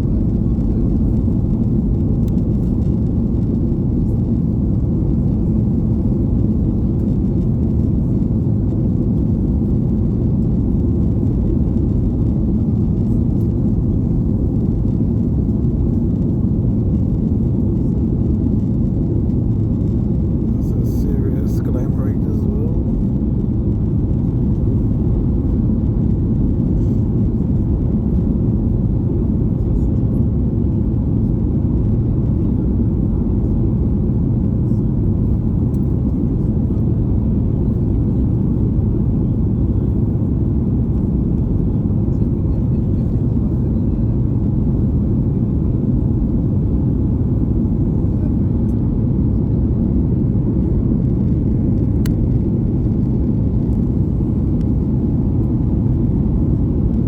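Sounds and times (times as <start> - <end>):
airplane cabin rumble: 0.0 - 57.0.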